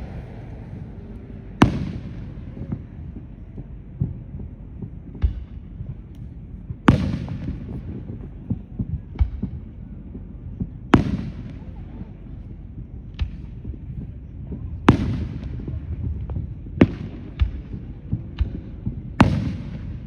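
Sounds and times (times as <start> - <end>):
fireworks bangs: 0.0 - 12.4, 13.2 - 20.0
fireworks popping: 0.0 - 20.0
low steady rumble: 0.0 - 20.0.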